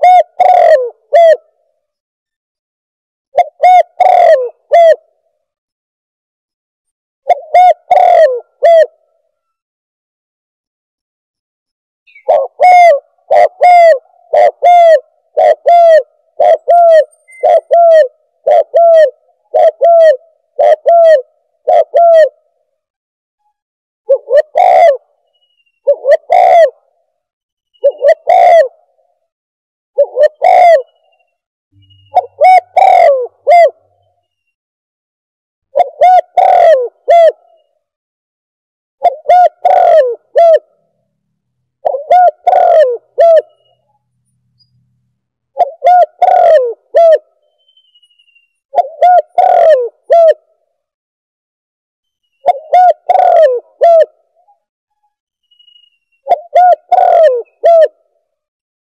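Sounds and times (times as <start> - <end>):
dove cooing: 0.0 - 1.6, 3.3 - 5.2, 7.2 - 9.6, 12.1 - 22.6, 24.1 - 27.0, 27.8 - 29.1, 30.0 - 31.0, 31.8 - 34.0, 35.7 - 37.7, 39.0 - 40.8, 41.8 - 43.8, 45.6 - 47.4, 48.7 - 50.5, 52.4 - 54.6, 56.2 - 58.1.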